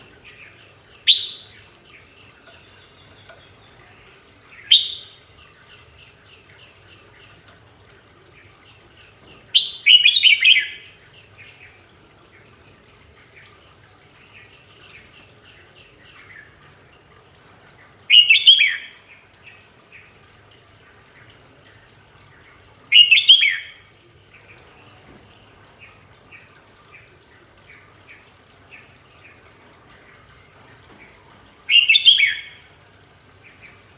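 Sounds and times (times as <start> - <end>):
soft short bird chirps: 1.1 - 1.6.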